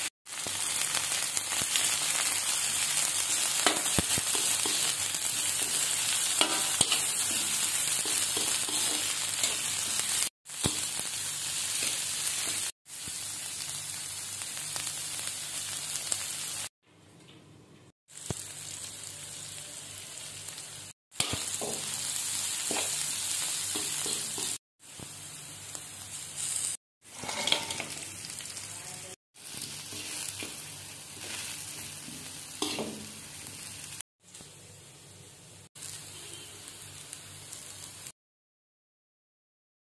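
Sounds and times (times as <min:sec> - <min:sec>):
vegetables sizzling in a wok: 0:00.0 - 0:16.7, 0:18.1 - 0:38.2
spatula scraping a wok: 0:03.0 - 0:10.9, 0:21.2 - 0:24.6, 0:26.4 - 0:28.2, 0:29.4 - 0:33.1.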